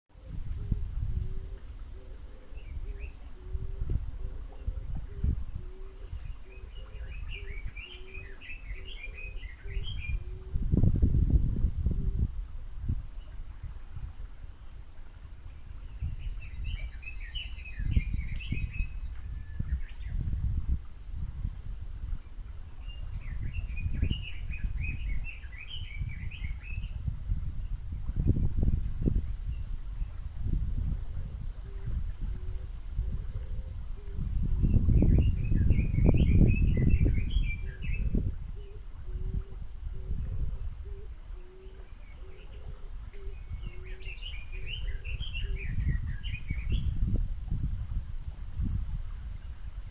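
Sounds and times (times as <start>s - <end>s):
songbird chirping: 1.4s - 10.8s, 13.2s - 20.7s, 22.1s - 30.9s, 34.1s - 47.2s.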